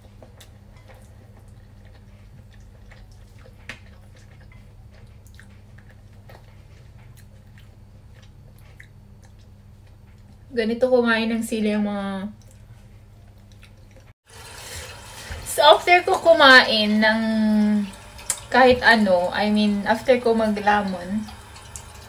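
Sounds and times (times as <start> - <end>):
person chewing noodles: 0.0 - 10.5, 12.4 - 14.2.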